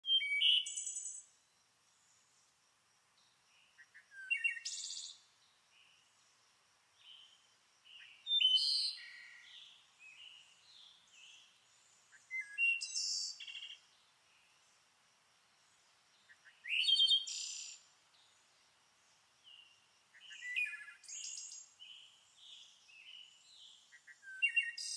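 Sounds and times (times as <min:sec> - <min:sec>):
songbirds singing: 0:00.0 - 0:02.5, 0:03.1 - 0:24.9.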